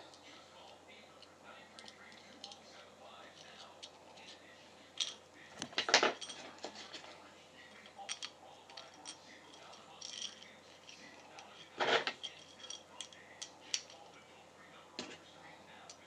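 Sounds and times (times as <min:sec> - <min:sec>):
metal screws clicking and rattling: 0:00.0 - 0:04.4, 0:05.0 - 0:07.0, 0:07.7 - 0:14.2.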